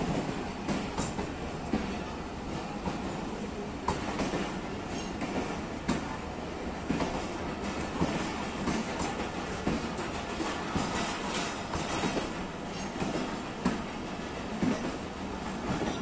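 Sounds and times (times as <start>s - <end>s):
train coaches rumbling past: 0.0s - 16.0s
wheels clacking over rail joints: 6.8s - 16.0s.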